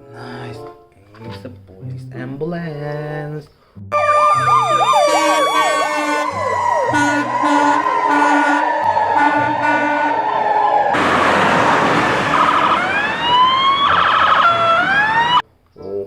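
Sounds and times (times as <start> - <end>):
siren steady tone: 3.9 - 15.4
rush with rising wails: 4.0 - 15.4.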